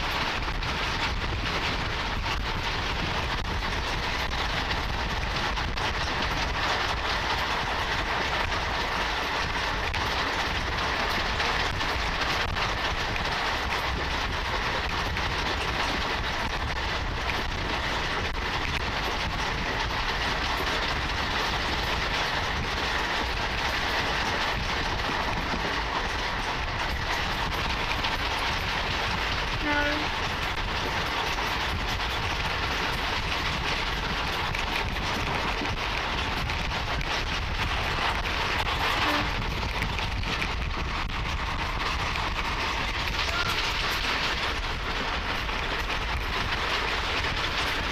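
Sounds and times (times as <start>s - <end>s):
train wheels on rails: 0.0s - 47.9s.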